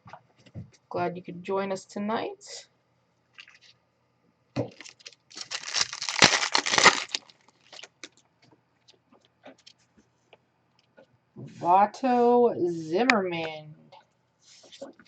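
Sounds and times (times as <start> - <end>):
foil wrapper tearing and crinkling: 4.7 - 8.2.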